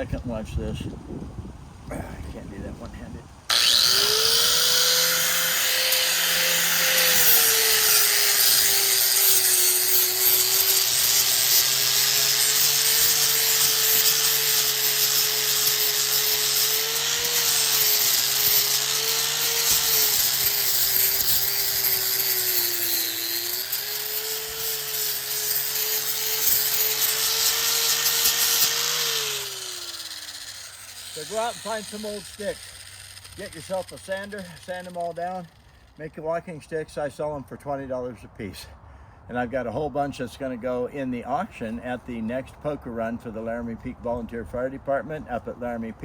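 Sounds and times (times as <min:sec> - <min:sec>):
electric sander on wood: 0:03.5 - 0:35.7
sander motor winding down: 0:03.5 - 0:35.7.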